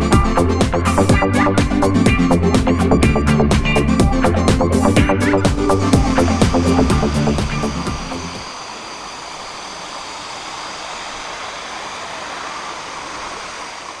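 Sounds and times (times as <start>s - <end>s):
waterfall rushing over rocks: 5.8s - 14.0s.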